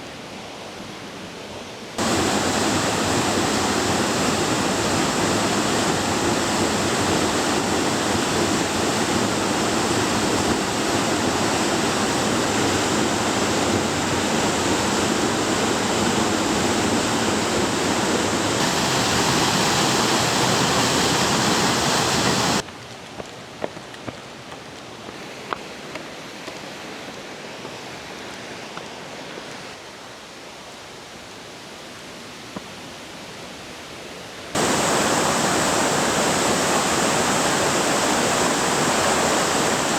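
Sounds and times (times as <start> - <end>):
waterfall rushing: 2.0 - 22.6, 34.6 - 39.9.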